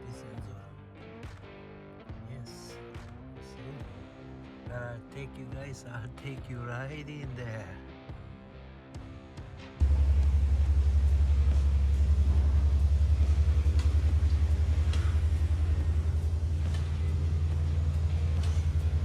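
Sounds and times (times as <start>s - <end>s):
diesel engine idling: 9.8s - 19.0s.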